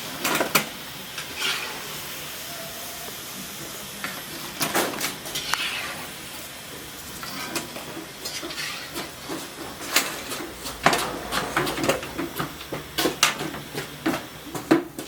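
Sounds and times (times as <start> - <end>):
food deep-frying in hot oil: 0.0 - 10.1.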